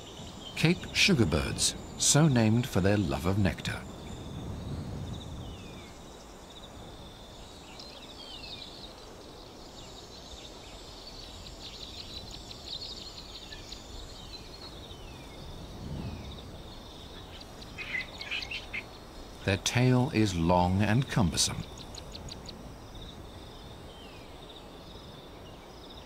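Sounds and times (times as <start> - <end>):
insect trill: 0.0 - 26.0
low outdoor hiss: 0.0 - 26.0
birds giving falling chirps: 11.2 - 24.2.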